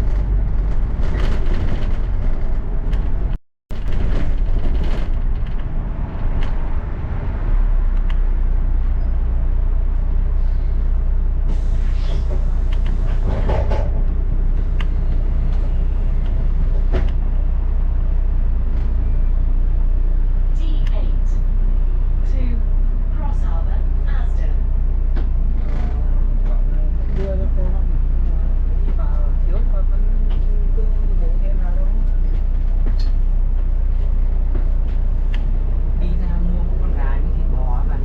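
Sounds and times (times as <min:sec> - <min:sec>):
rattles and clicks: 0:00.0 - 0:06.6
bus engine and road rumble: 0:00.0 - 0:38.0.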